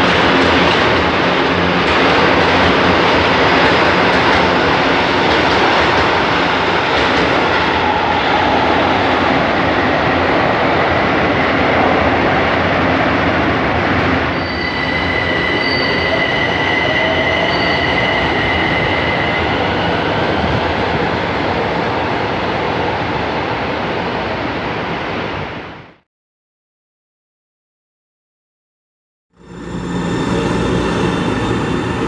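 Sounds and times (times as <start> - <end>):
train wheels rumbling on rail: 0.0 - 25.6, 29.4 - 32.0
high-pitched wheel squeal: 14.3 - 20.2.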